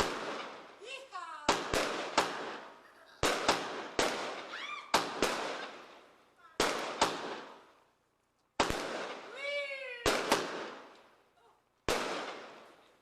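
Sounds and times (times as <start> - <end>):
fireworks bangs: 0.0 - 7.9, 8.5 - 11.2, 11.8 - 13.0
high-pitched cry: 4.5 - 4.9.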